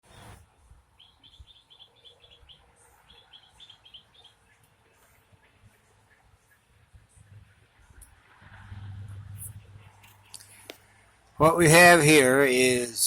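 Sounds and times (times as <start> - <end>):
bird chirping: 0.1 - 4.7.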